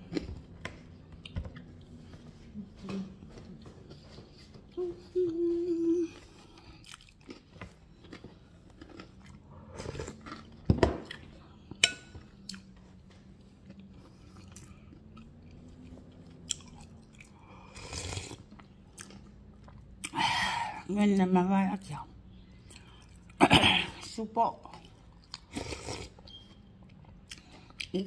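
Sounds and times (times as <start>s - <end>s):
crackers crunching while chewed: 6.4s - 20.2s.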